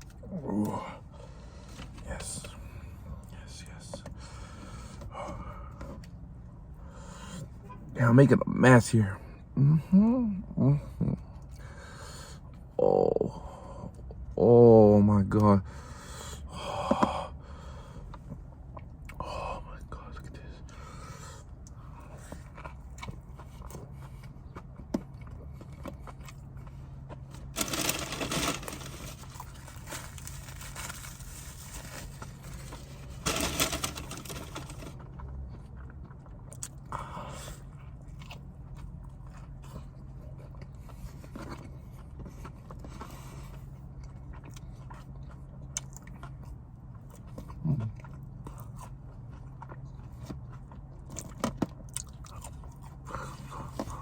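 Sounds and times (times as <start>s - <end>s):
chewing and biting food: 20.7s - 54.0s
food crunching: 21.6s - 37.2s.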